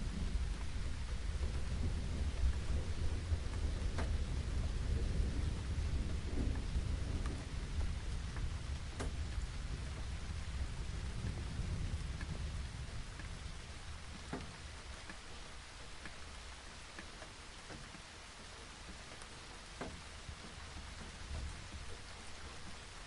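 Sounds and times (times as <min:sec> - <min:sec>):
distant thunder rumbling: 0:00.0 - 0:15.1
steady rain: 0:00.0 - 0:23.0.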